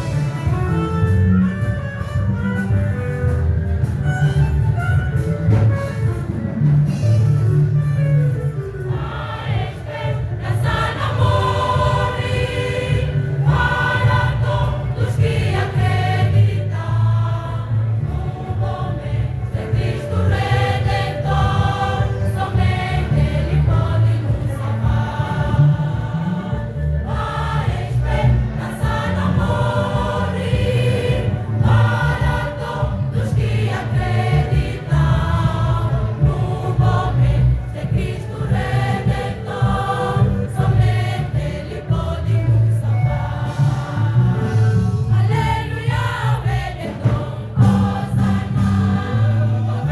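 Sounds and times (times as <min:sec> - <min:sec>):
low bass line: 0:00.0 - 0:08.4
choir singing: 0:08.9 - 0:49.9.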